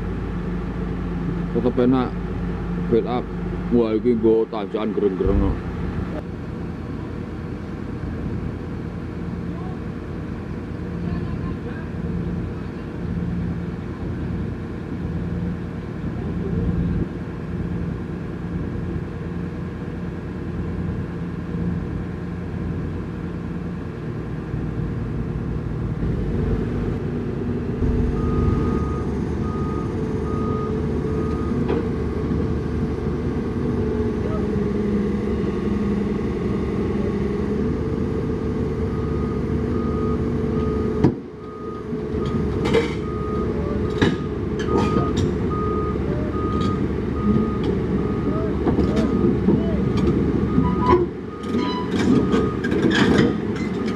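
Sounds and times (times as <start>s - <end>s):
diesel truck engine running: 0.0s - 53.9s
reversing beeper beeps: 27.8s - 31.6s, 44.6s - 49.4s.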